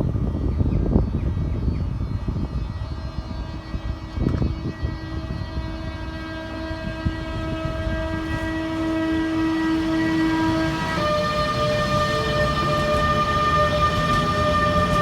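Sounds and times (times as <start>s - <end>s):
train rumbling: 3.5s - 15.0s
locomotive horn: 4.8s - 15.0s.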